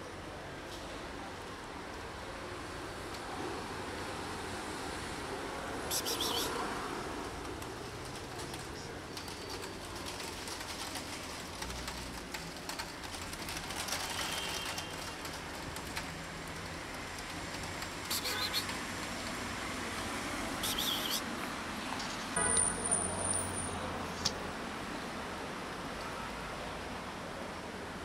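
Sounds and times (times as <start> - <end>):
short bird calls: 18.1 - 18.7, 20.6 - 21.3.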